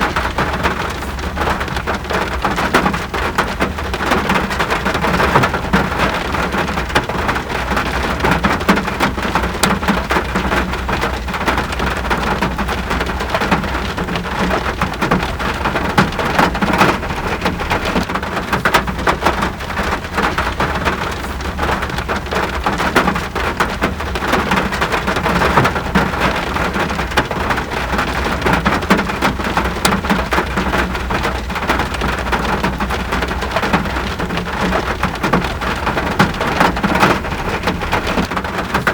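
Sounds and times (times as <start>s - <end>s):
rain falling: 0.0s - 38.9s.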